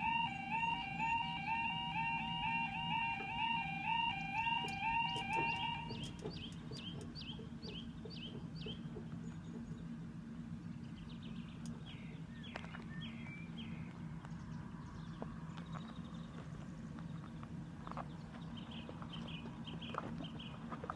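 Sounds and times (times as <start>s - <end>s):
alternating two-tone sound: 0.0s - 6.1s
small birds chirping: 0.0s - 20.9s.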